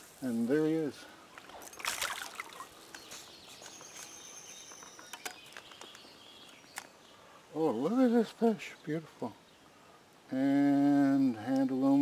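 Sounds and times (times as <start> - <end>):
water splashing: 1.3 - 2.8
clicks and rustles of handling: 2.8 - 6.9.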